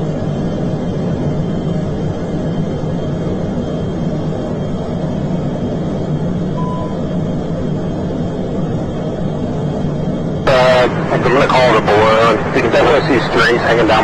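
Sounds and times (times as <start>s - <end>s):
aircraft engine and airflow drone: 0.0s - 14.0s
short faint beep: 6.6s - 7.2s.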